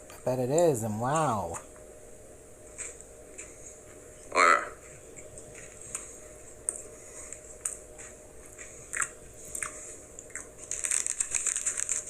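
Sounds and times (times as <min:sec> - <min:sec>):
person chewing: 0:05.5 - 0:12.0
crisp wafer crunches: 0:05.6 - 0:12.0.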